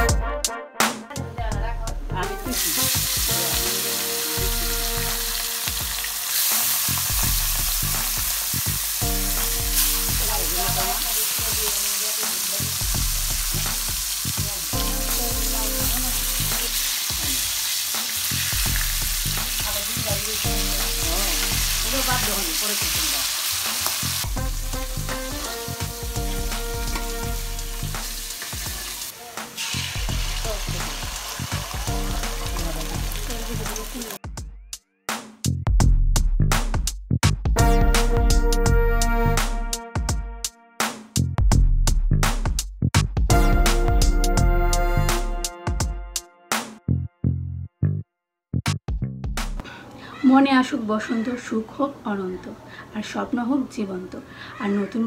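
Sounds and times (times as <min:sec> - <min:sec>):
batter sizzling in hot oil: 0:02.5 - 0:34.2
fish sizzling in oil: 0:02.5 - 0:34.2.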